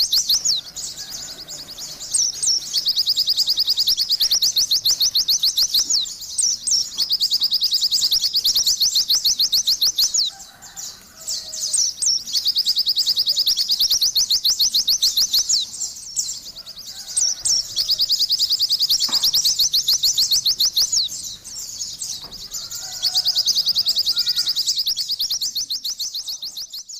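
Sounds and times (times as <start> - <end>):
bird singing rapid trills: 0.0 - 26.9
faint lower bird chirps: 0.0 - 26.9.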